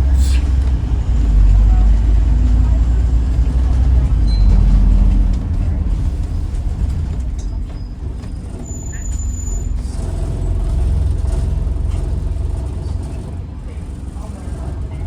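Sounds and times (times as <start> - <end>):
bus engine droning: 0.0 - 15.0.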